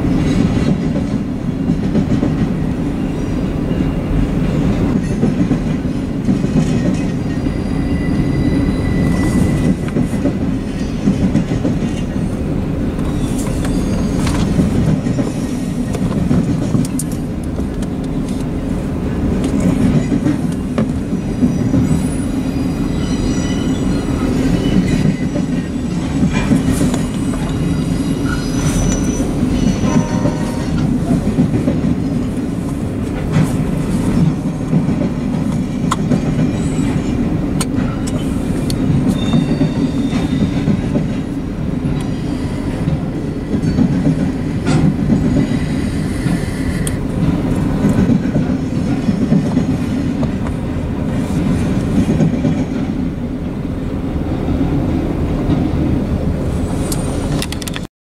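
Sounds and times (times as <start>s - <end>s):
train wheels rumbling: 0.0s - 57.9s
high wheel squeals: 7.0s - 11.2s, 13.0s - 15.9s, 21.2s - 30.8s, 36.4s - 37.2s, 38.9s - 40.8s, 42.0s - 44.0s.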